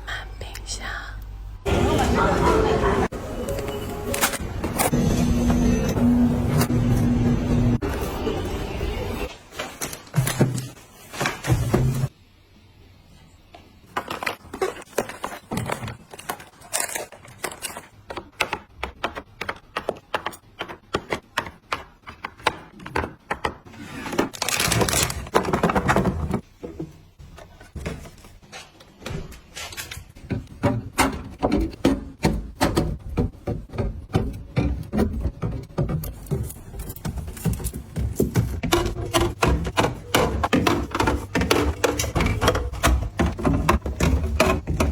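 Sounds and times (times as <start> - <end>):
household items clicking and knocking: 13.8 - 28.9, 29.6 - 44.9
rustling and scraping: 33.3 - 44.9.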